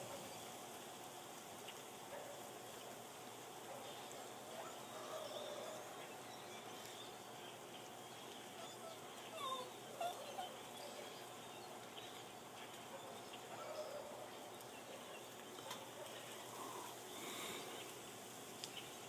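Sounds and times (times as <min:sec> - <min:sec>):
steady background hiss: 0:00.0 - 0:19.0
flock of birds calling: 0:01.6 - 0:19.0.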